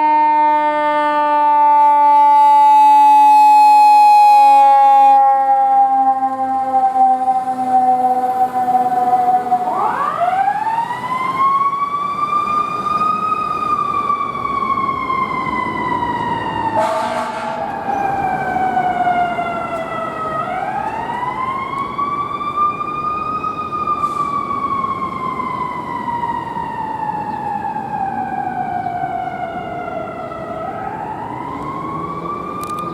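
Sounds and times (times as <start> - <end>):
horn blasts: 0.0 - 6.6, 16.8 - 18.2.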